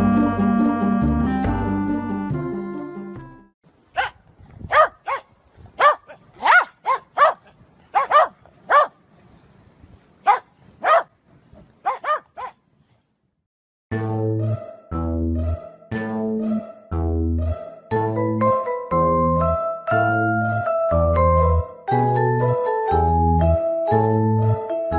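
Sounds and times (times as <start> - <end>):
dog barking: 4.0 - 9.0, 10.2 - 11.1, 11.8 - 12.6.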